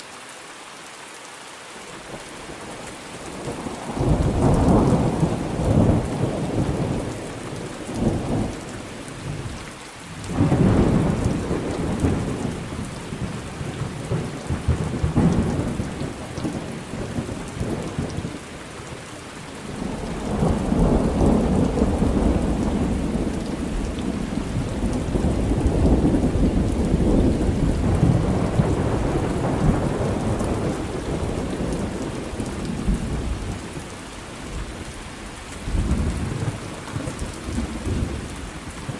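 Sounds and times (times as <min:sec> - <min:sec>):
steady rain: 0:00.0 - 0:38.9
thunder rumbling: 0:03.4 - 0:09.5, 0:10.2 - 0:18.4, 0:19.6 - 0:33.9.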